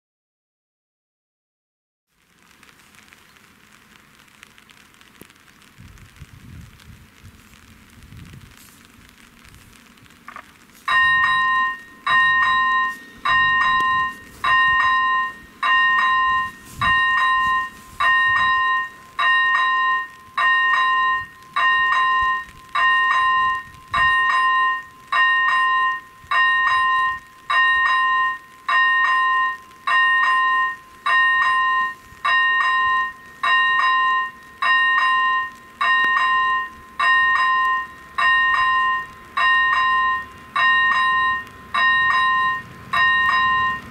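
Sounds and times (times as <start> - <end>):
level crossing bell dinging: 10.9 - 43.9.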